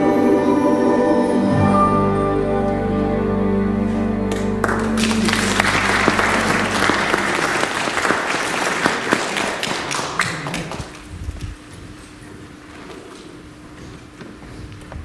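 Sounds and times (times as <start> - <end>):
held music chord ringing: 0.0 - 8.0
congregation applauding: 3.9 - 11.0.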